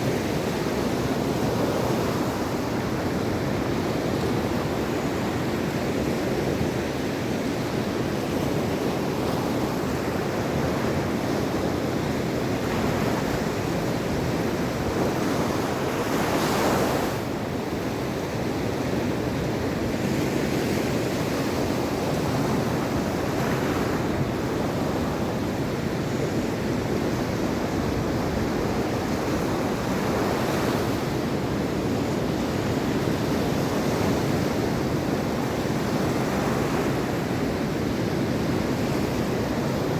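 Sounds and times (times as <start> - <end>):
waves washing onto shore: 0.0 - 39.9
wind rumble on microphone: 0.0 - 39.9.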